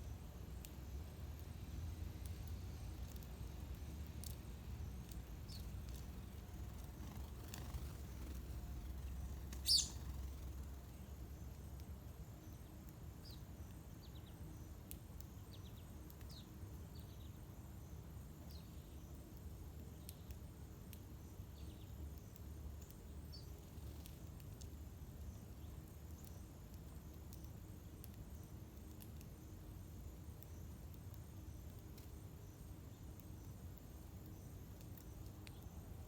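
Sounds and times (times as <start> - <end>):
small birds chirping: 0.0 - 36.0
low background rumble: 0.1 - 12.1.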